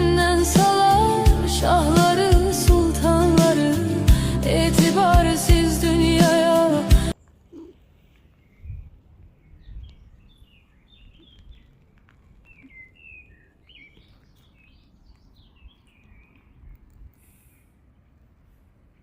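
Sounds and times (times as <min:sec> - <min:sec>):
songbirds chirping: 0:07.1 - 0:19.0.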